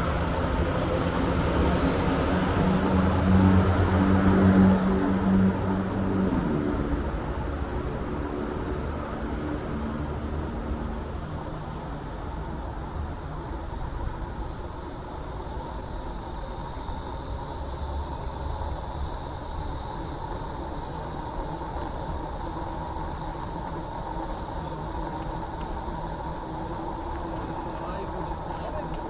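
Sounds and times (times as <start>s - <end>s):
passing cars rumbling: 0.0s - 14.6s.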